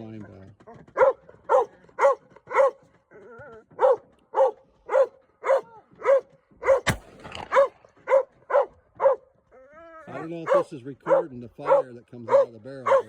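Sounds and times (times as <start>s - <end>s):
dog barking: 0.9s - 2.8s, 3.8s - 6.9s, 7.5s - 9.3s, 10.1s - 13.0s
revolver gunshot: 6.7s - 8.2s.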